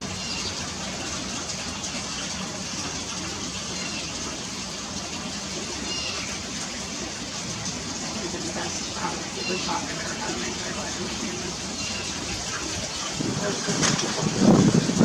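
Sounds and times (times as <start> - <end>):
steady rushing noise: 9.8 - 15.0.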